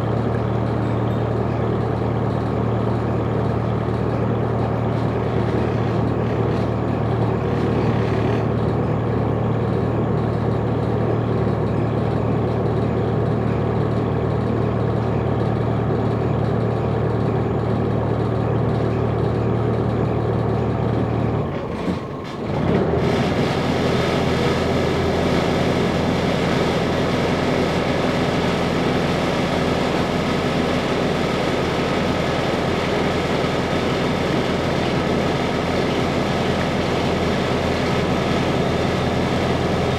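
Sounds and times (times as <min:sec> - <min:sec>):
boat engine humming: 0:23.6 - 0:39.9.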